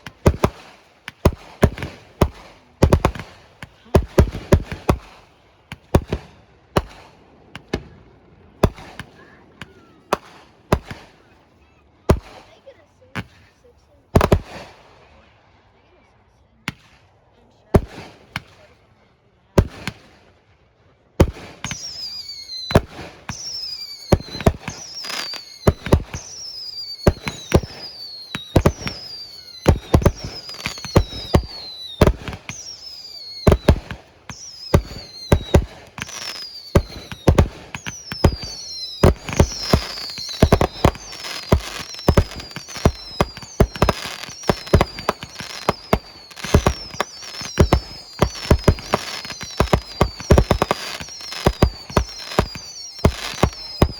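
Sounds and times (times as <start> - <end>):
fireworks reports: 0.0 - 53.9
fireworks whistles falling in pitch: 21.2 - 53.9.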